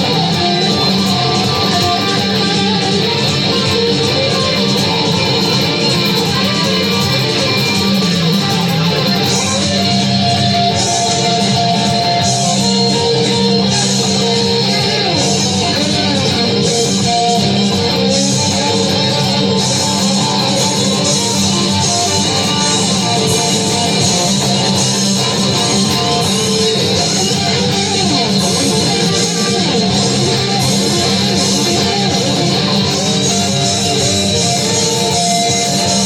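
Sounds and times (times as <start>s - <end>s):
lead guitar bending notes: 0.0s - 36.0s
rock music on electric guitars: 0.0s - 36.0s.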